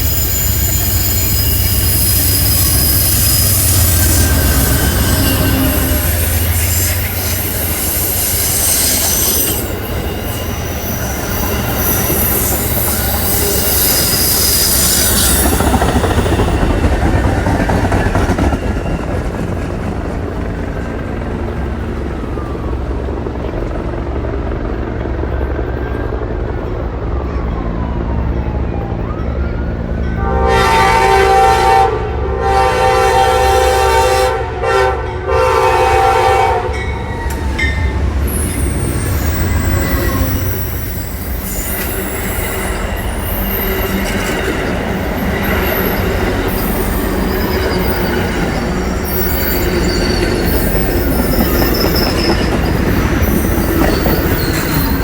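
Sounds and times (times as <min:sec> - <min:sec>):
wheel squeals: 0:00.0 - 0:19.7, 0:36.8 - 0:55.0
train low rumble: 0:00.0 - 0:55.0
train horn chord: 0:02.9 - 0:07.8, 0:30.1 - 0:37.0, 0:39.5 - 0:40.7
rail clatter: 0:36.7 - 0:55.0.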